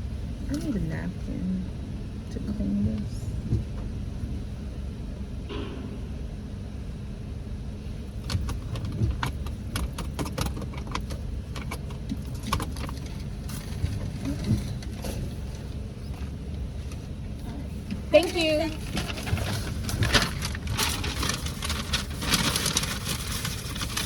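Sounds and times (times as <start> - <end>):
car engine idling: 0.0 - 24.0
sharp irregular clicks and rattles: 8.2 - 17.1, 17.8 - 24.0.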